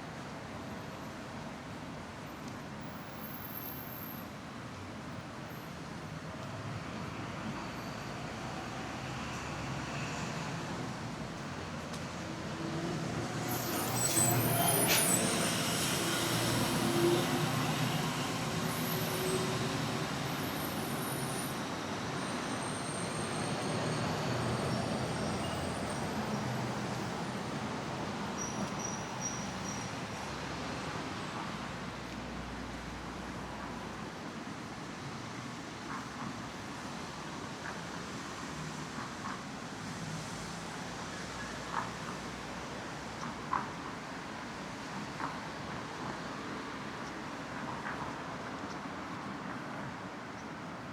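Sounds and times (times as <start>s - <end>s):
road traffic hum: 6.7s - 50.9s
brake squeals: 12.2s - 30.7s.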